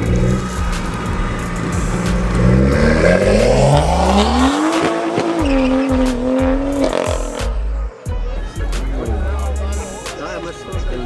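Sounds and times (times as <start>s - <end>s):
car engine revving: 0.0s - 7.8s, 8.4s - 11.0s.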